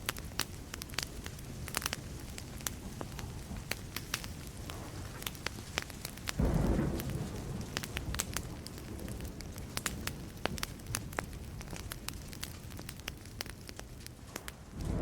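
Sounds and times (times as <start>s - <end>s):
wood fire crackling: 0.0s - 15.0s
thunder clap: 6.4s - 10.2s, 14.3s - 15.0s.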